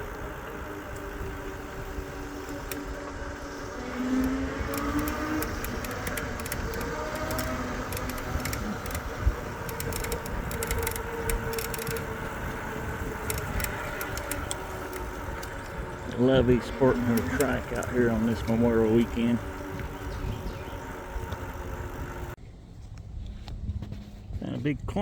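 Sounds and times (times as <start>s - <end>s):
faint electric motor whine: 0.0s - 22.4s
wind rumble on microphone: 0.0s - 25.0s
light clicks and rattles: 4.1s - 20.0s.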